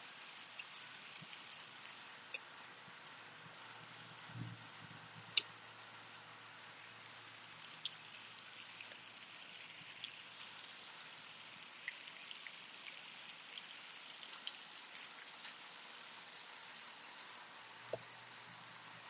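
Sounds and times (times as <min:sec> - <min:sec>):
small ticks and clicks: 0:00.4 - 0:02.5, 0:07.4 - 0:10.8, 0:11.5 - 0:16.0, 0:16.7 - 0:18.8.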